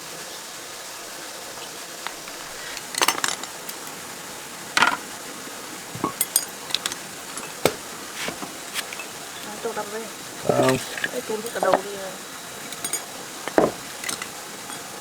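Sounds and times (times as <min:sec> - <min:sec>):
steady low hiss: 0:01.0 - 0:15.0
metal tools clinking: 0:02.8 - 0:03.9, 0:06.0 - 0:09.7, 0:10.4 - 0:15.0.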